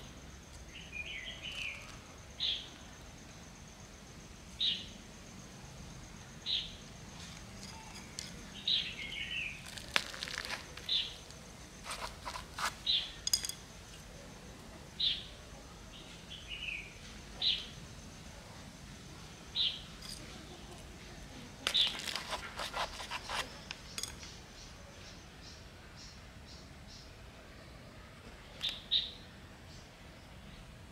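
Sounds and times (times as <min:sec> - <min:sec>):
light scraping in plastic basket: 0:11.8 - 0:13.0, 0:21.7 - 0:24.1.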